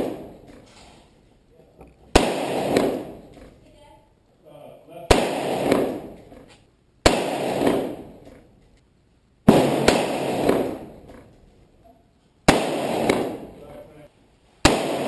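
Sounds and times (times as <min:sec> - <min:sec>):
rifle shots with echo: 0:00.0 - 0:00.5, 0:02.1 - 0:03.3, 0:05.1 - 0:06.4, 0:07.0 - 0:08.5, 0:09.4 - 0:11.1, 0:12.4 - 0:13.9, 0:14.6 - 0:15.0.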